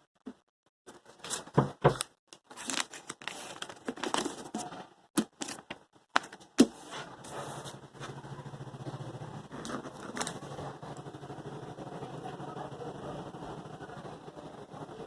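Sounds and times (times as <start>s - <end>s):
packaging crinkling and tearing: 2.3s - 6.4s.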